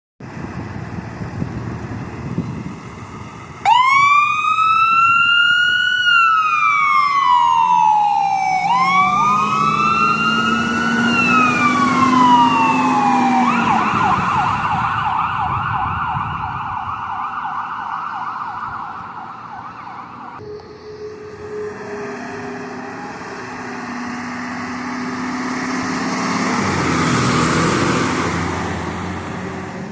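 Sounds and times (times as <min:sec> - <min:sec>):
low traffic rumble: 0:00.2 - 0:29.9
vehicle engine drone: 0:00.2 - 0:29.9
ambulance siren wailing and yelping: 0:03.6 - 0:24.0.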